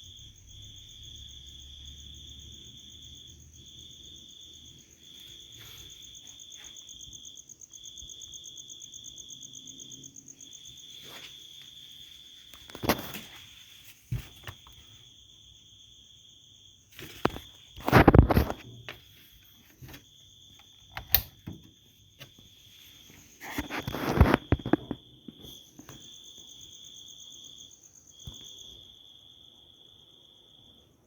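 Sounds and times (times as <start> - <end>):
crickets chirping: 0.0 - 31.0
sharp clicks: 20.9 - 21.7.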